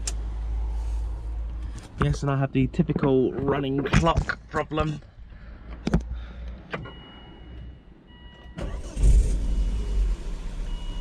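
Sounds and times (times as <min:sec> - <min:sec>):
car engine starting and running: 0:06.5 - 0:11.0.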